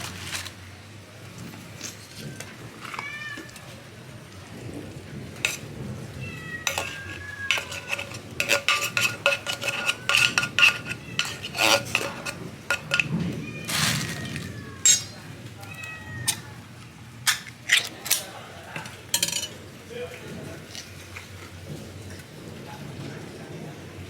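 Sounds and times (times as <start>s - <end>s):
cats meowing: 2.2s - 3.8s, 5.6s - 16.7s
spoon scraping tin can: 5.4s - 5.7s, 6.6s - 15.3s, 17.3s - 18.2s.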